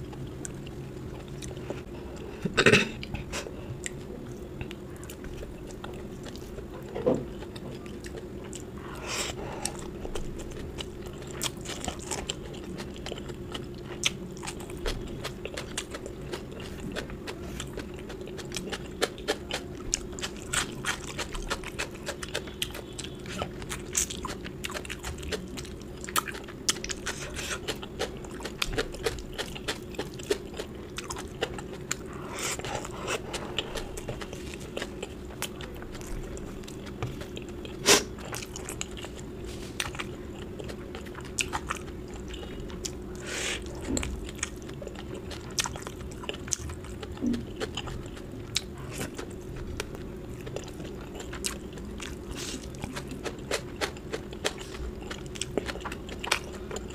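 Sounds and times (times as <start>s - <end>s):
chewing and biting: 3.8s - 56.9s.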